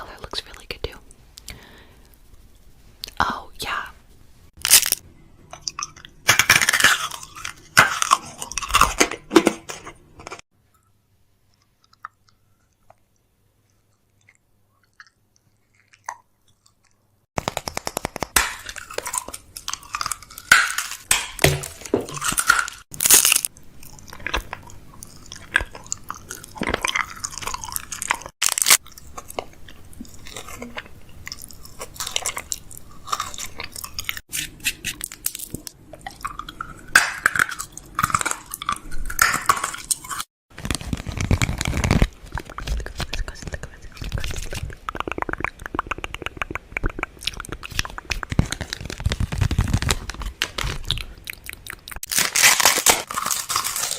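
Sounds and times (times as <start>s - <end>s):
plastic packaging crinkling: 4.6s - 5.0s, 17.4s - 23.5s, 25.6s - 29.5s, 39.6s - 44.6s, 47.6s - 51.2s, 52.0s - 53.9s.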